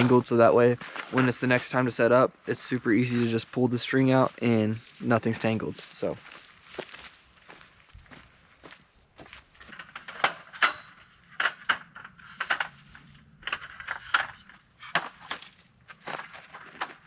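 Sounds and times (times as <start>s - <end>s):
camping gear knocking and clinking: 9.6s - 17.0s.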